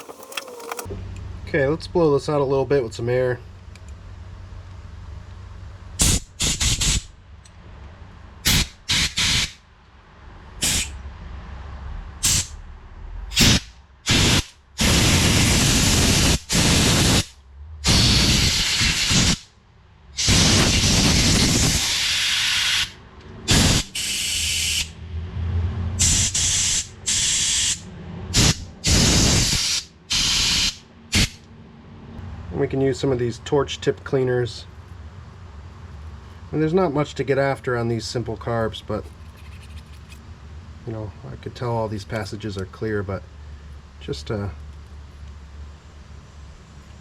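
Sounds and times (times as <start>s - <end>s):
air blow gun hissing blasts: 13.3s - 19.5s, 20.2s - 22.9s, 23.5s - 24.9s.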